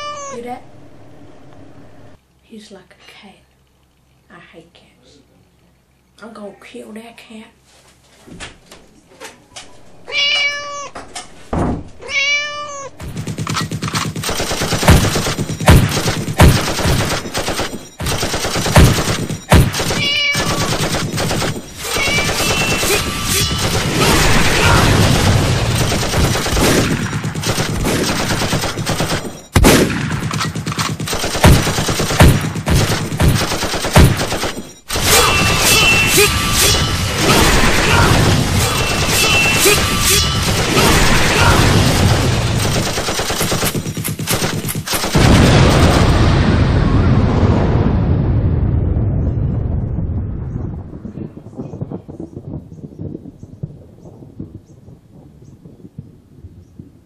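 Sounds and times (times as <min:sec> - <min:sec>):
cat meowing: 0:00.0 - 0:00.6, 0:10.0 - 0:11.1, 0:12.0 - 0:13.0, 0:19.9 - 0:20.9, 0:21.8 - 0:23.5
crashing and banging: 0:12.9 - 0:46.6.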